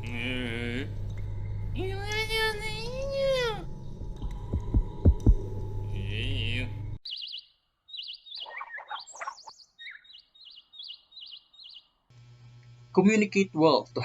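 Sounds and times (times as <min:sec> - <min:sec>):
low hum: 0:00.0 - 0:07.0
birds chirping: 0:06.0 - 0:12.1.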